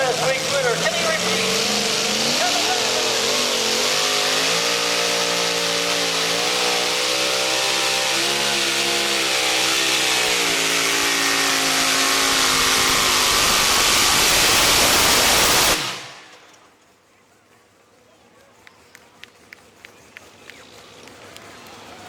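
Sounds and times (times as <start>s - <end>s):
racing engine at full throttle: 0.0s - 16.4s.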